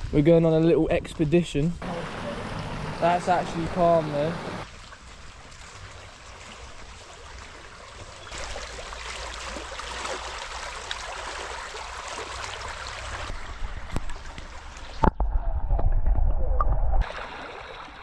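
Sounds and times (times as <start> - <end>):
river water flowing: 1.8 - 15.0, 17.0 - 18.0.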